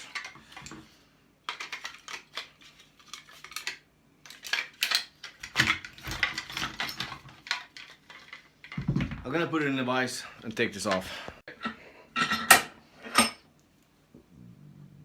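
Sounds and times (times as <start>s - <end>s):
metal parts and tools clinking: 4.3s - 9.1s.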